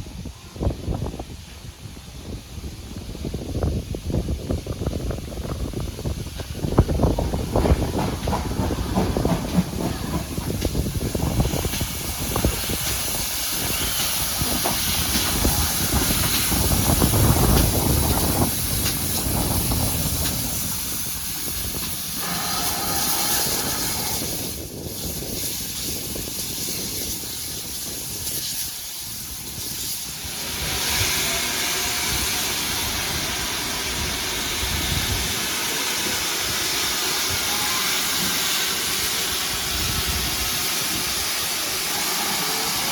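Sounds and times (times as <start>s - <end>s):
steam locomotive hissing: 0.0s - 42.9s.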